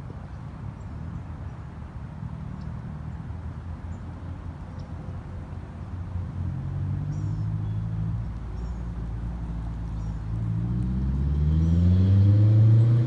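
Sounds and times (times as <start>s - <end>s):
car engine rumbling: 5.0s - 13.0s.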